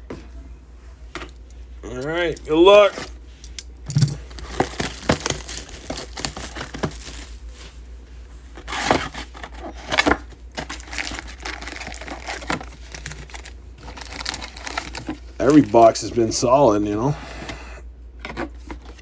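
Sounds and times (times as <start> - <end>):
plastic wrapping crinkling and tearing: 4.2 - 7.6, 8.7 - 16.1.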